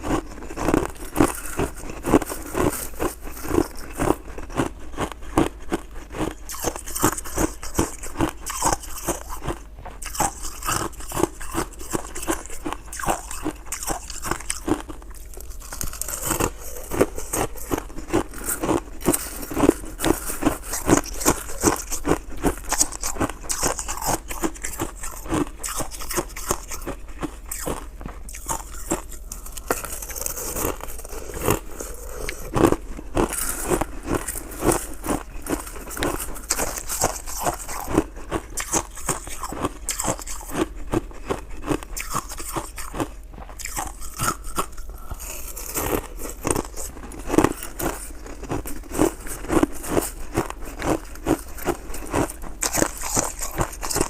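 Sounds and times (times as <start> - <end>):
shaved ice crunching: 13.1 - 26.3, 28.3 - 38.0, 43.6 - 54.0.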